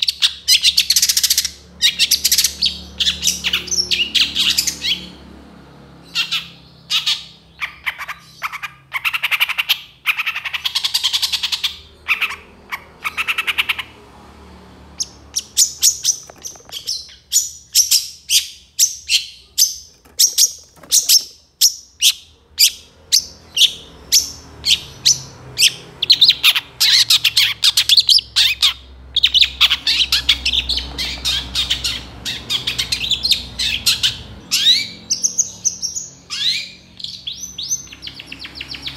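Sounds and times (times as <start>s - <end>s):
shrike singing varied song: 15.0s - 38.9s.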